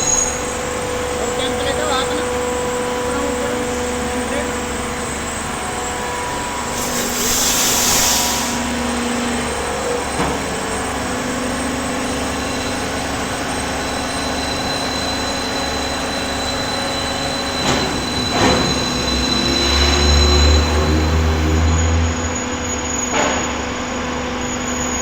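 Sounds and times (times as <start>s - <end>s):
hydraulic power unit humming: 0.0s - 23.1s
hydraulic hiss: 6.4s - 9.5s.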